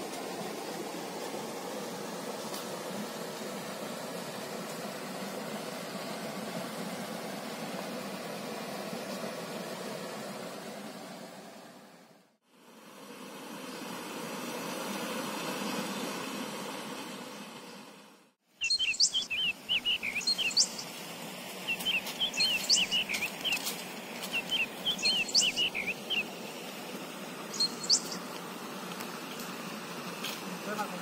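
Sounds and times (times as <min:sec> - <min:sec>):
songbirds chirping and whistling: 0:18.6 - 0:21.0, 0:21.6 - 0:26.3, 0:27.5 - 0:28.2.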